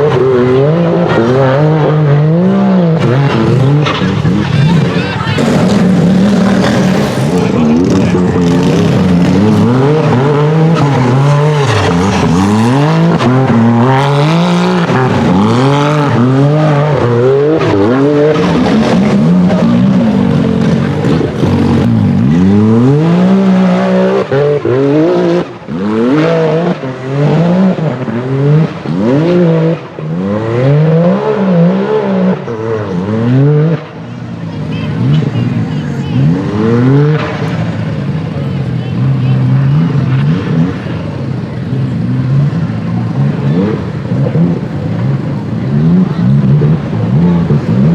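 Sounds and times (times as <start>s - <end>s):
buggy engine revving hard: 0.0s - 47.9s.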